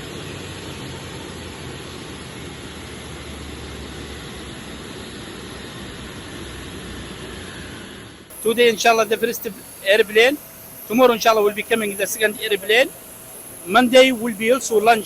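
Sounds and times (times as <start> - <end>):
jet engines running: 0.0 - 15.0
low hum: 7.7 - 15.0.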